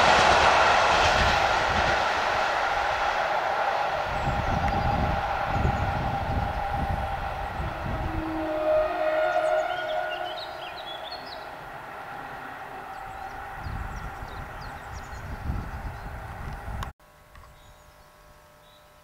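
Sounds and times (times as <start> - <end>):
train rumbling over points: 0.0 - 16.8
whining tones: 2.6 - 16.8.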